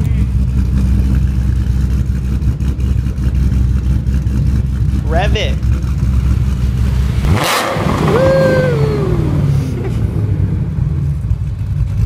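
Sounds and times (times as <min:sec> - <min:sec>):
car engine revving: 0:00.0 - 0:12.0
sudden noisy burst: 0:06.5 - 0:10.8
short rising and falling cry: 0:06.8 - 0:10.4.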